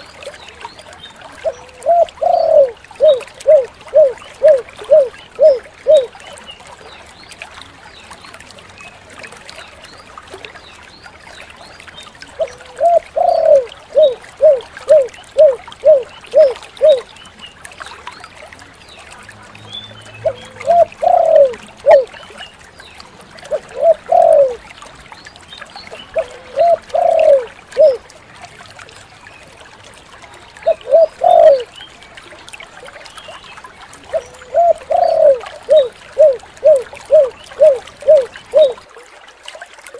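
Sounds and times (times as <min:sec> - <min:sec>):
dove cooing: 0:01.4 - 0:06.1, 0:12.4 - 0:17.1, 0:20.2 - 0:22.2, 0:23.5 - 0:24.6, 0:26.1 - 0:28.0, 0:30.6 - 0:31.7, 0:34.1 - 0:38.9.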